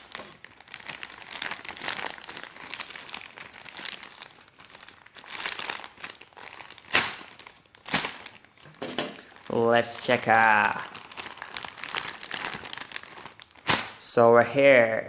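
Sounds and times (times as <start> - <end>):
packaging crinkling and rustling: 0.0 - 14.1.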